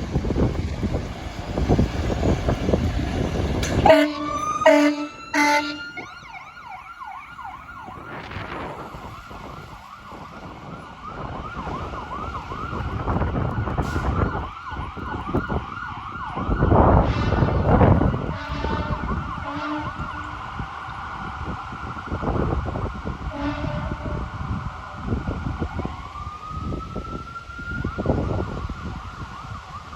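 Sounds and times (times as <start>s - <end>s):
truck passing low rumble: 0.0s - 29.0s
fire engine horn blasts: 3.6s - 6.6s, 16.7s - 20.6s, 23.2s - 24.3s
siren cycling up and down: 3.8s - 10.5s.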